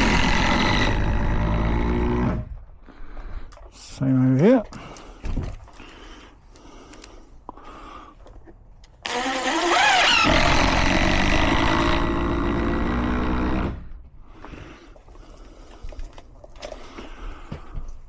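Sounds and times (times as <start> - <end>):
motor spinning up: 9.1 - 13.7.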